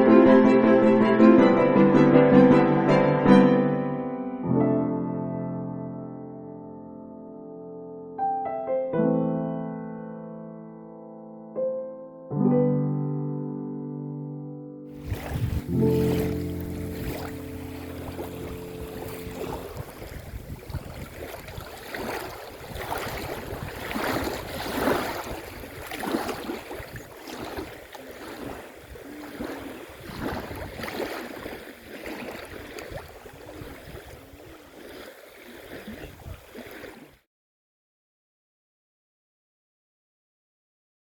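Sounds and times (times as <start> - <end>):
gusty wind on microphone: 15.0 - 31.7, 32.3 - 34.8
small waves lapping shore: 15.0 - 37.2.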